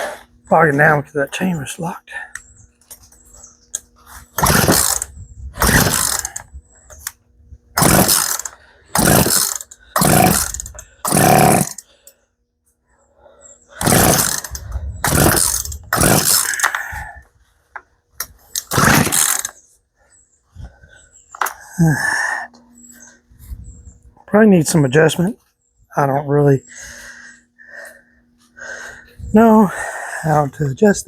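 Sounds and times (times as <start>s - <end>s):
chainsaw starter cord rasping: 4.4s - 7.2s, 7.8s - 12.0s, 13.7s - 17.0s, 18.5s - 19.6s.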